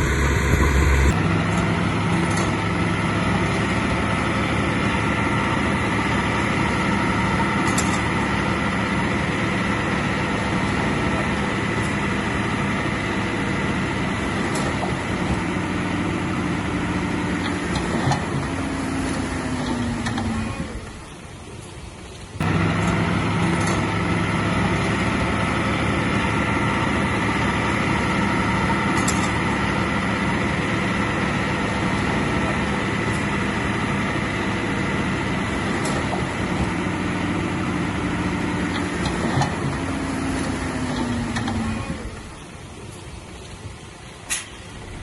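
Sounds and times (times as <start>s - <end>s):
high whine: 0.0s - 2.1s
heavy diesel engine running: 0.0s - 21.2s, 22.4s - 42.9s.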